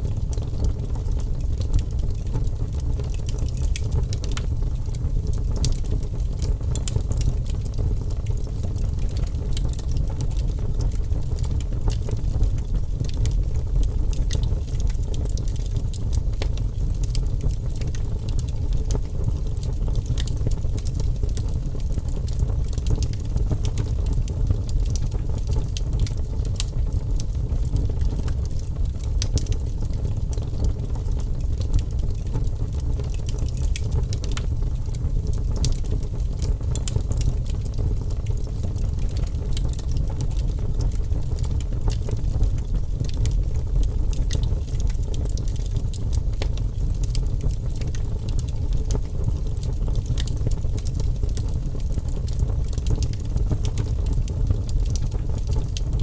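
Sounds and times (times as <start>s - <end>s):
low rumble of flames: 0.0s - 56.0s
wood fire crackling and popping: 0.0s - 56.0s.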